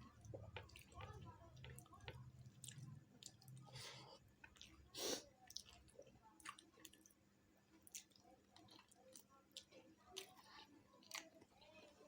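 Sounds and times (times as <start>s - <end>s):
person chewing: 7.8s - 12.0s.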